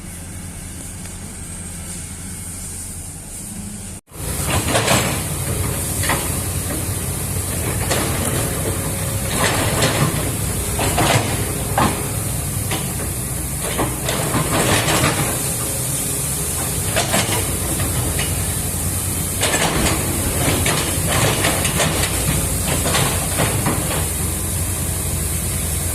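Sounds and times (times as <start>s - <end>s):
constant high hiss: 0.0s - 25.9s
excavator diesel engine: 0.0s - 25.9s.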